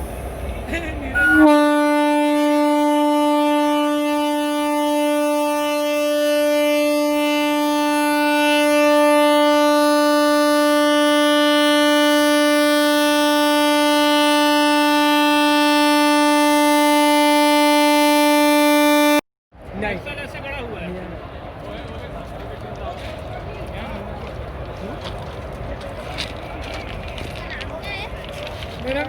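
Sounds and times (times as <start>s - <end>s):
locomotive air horn blast: 1.2s - 19.2s.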